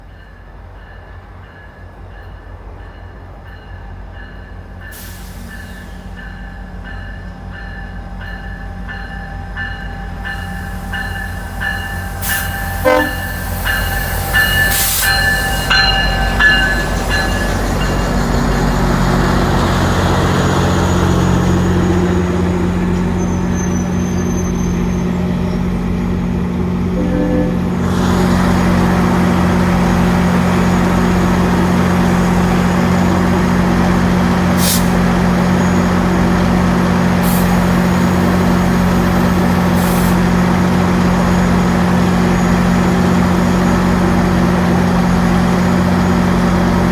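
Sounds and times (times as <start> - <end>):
train engine and wheels rumbling: 0.0 - 46.9
locomotive bell ringing: 5.6 - 18.3, 26.9 - 28.3
train horn: 12.2 - 13.5, 26.9 - 28.3.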